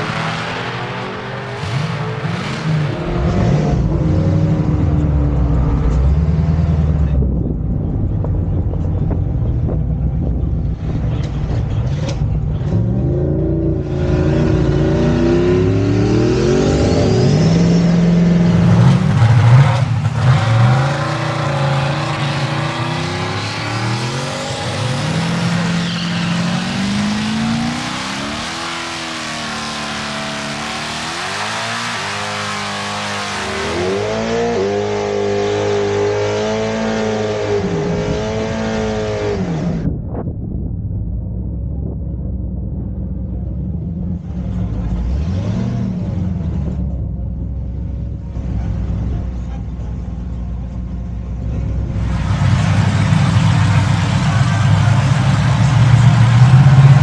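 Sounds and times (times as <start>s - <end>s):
drag racing engine revving: 0.0s - 7.2s, 10.3s - 39.8s, 51.8s - 57.0s.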